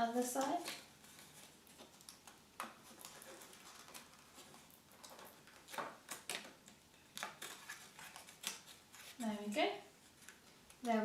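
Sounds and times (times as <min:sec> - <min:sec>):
crisp paper crackle: 0:00.0 - 0:11.0
paper card rustling and tapping: 0:00.3 - 0:09.2.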